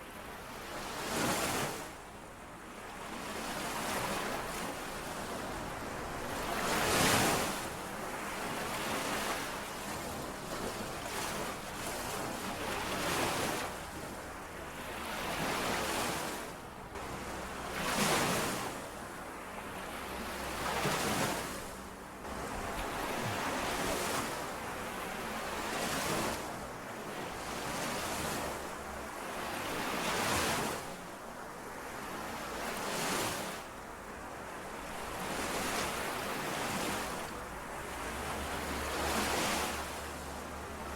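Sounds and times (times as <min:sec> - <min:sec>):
lake waves lapping on shore: 0:02.8 - 0:40.9.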